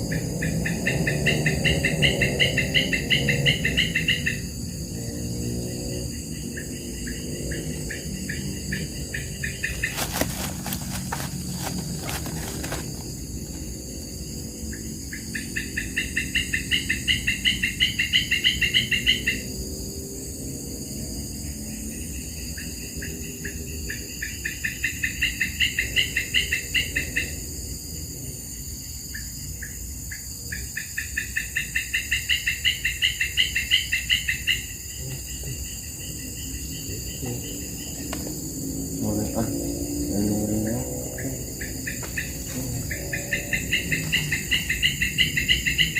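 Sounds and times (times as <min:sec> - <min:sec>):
high-pitched insect drone: 0:00.0 - 0:45.9
rapid pulsing insect trill: 0:00.0 - 0:45.9.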